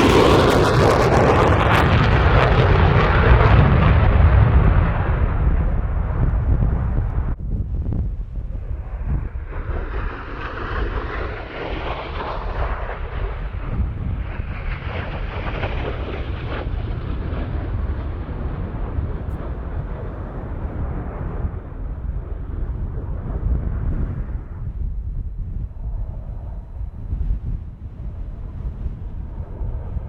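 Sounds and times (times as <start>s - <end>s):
jet roar flying by: 0.0s - 7.4s, 8.3s - 24.9s
wind rumble on microphone: 0.0s - 30.0s.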